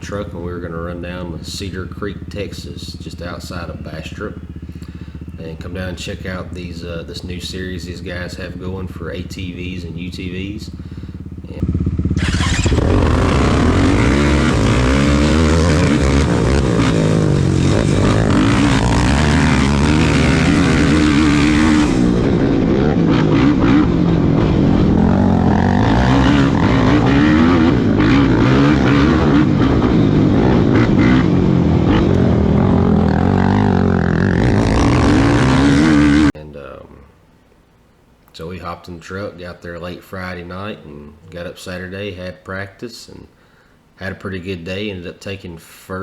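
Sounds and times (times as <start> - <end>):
racing engine revving: 0.0 - 36.4.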